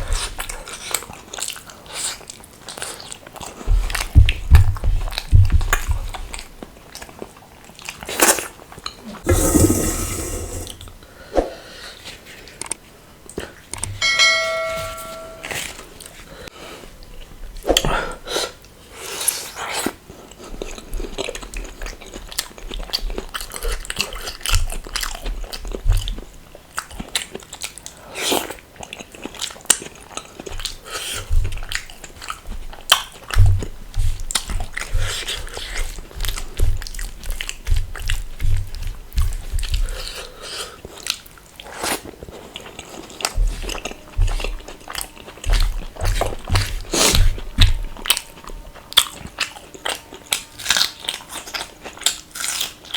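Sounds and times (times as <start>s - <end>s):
food crunching: 48.1s - 52.9s.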